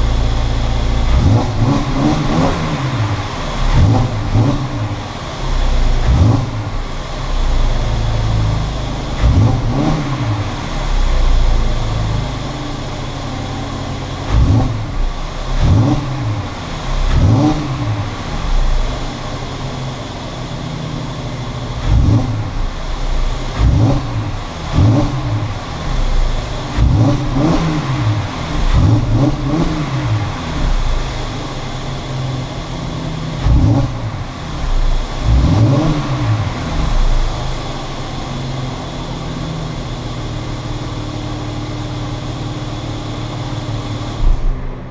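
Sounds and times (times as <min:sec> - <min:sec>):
car engine idling: 0:00.0 - 0:44.9
car exhaust revving: 0:00.0 - 0:44.9.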